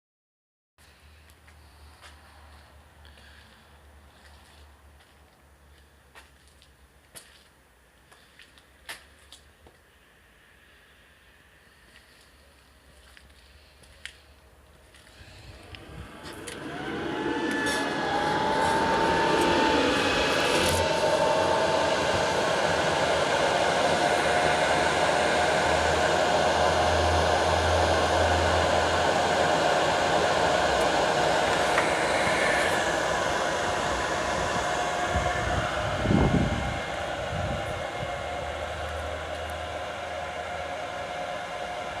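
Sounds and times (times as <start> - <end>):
cooling fans whirring: 12.8 - 42.0.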